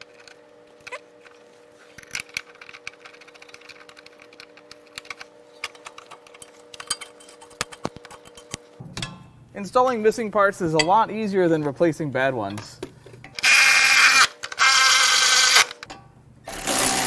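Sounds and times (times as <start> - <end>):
light metal clicks and scrapes: 0.0 - 8.8
steady hum: 0.0 - 13.4.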